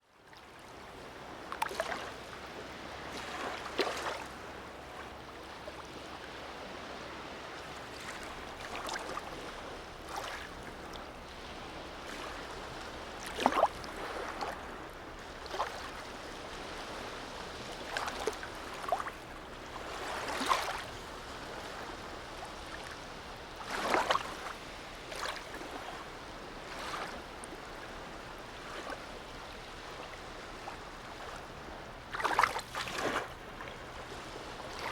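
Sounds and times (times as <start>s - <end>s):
small waves lapping and splashing: 0.0s - 34.9s.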